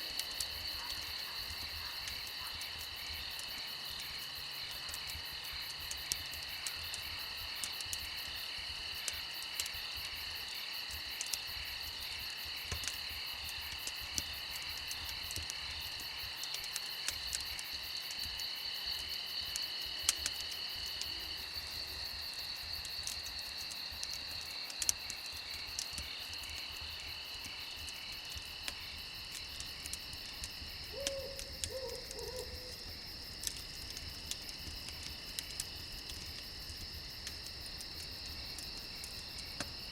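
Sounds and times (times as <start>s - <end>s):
campfire crackling: 0.0s - 39.9s
crickets trilling: 0.0s - 39.9s
low animal call: 30.9s - 32.8s.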